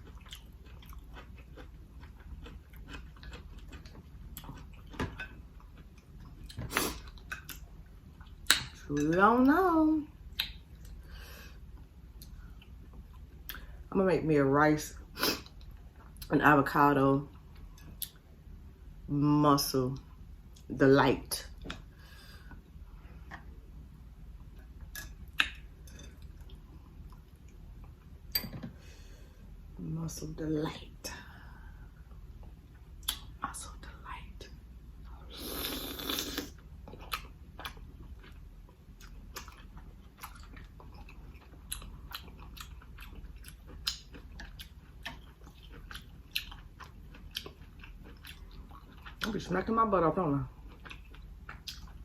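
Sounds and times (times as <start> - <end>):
chewing and mouth smacking: 0.0 - 8.8, 10.3 - 11.0, 36.3 - 49.4, 50.6 - 52.0.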